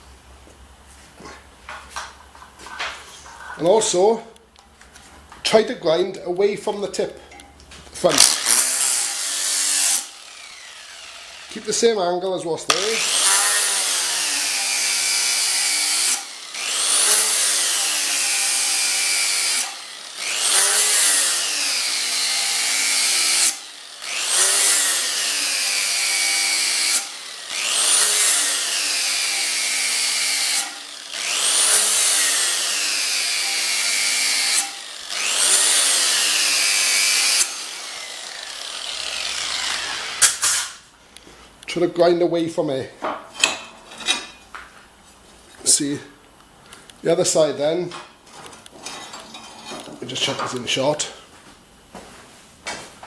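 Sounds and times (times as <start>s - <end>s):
angle grinder grinding steel: 8.0s - 12.1s, 12.7s - 40.8s.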